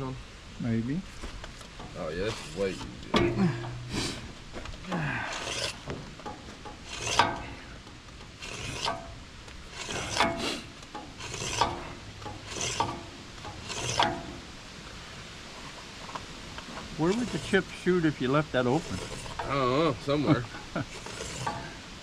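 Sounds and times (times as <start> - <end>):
knife sharpening rasping strokes: 5.3 - 5.8, 6.8 - 7.6, 8.4 - 9.0, 9.7 - 14.3, 18.7 - 19.5, 20.8 - 21.8.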